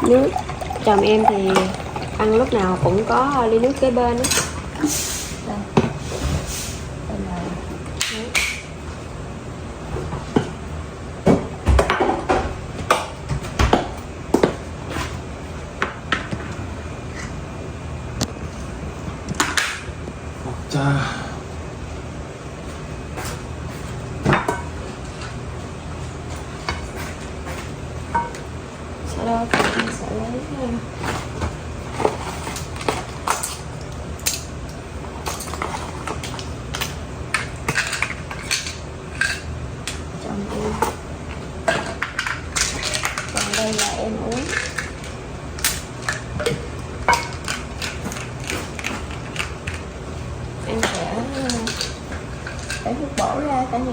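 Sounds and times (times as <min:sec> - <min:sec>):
dishes and utensils clinking: 0:00.0 - 0:04.6.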